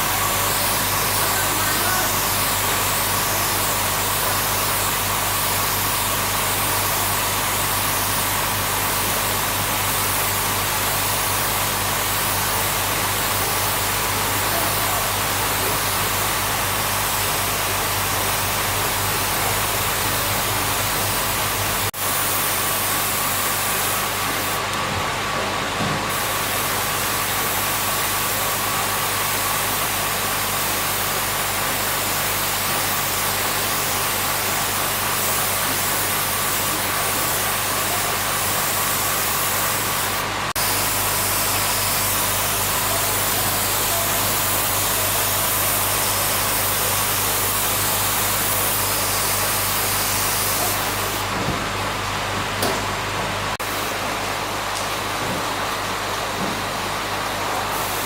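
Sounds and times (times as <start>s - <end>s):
hiss: 0.0s - 21.2s, 26.1s - 51.3s.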